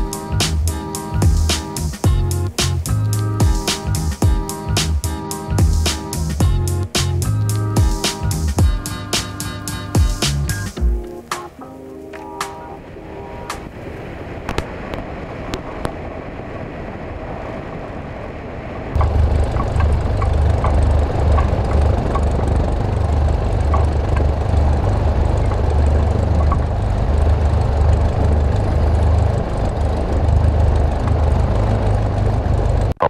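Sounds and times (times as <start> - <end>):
airplane engine droning in cabin: 10.8 - 33.0.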